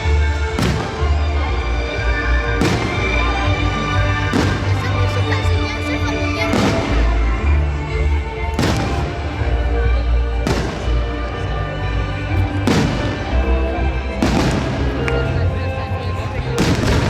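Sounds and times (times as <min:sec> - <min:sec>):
fireworks bursting with echo: 0:00.3 - 0:07.3, 0:08.4 - 0:09.6, 0:10.3 - 0:15.6, 0:16.4 - 0:17.0.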